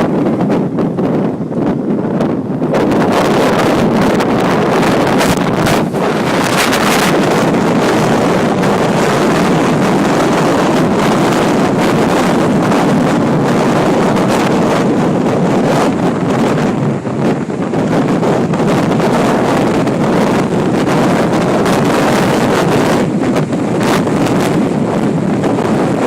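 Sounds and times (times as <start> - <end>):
strong wind on microphone: 0.0 - 26.0.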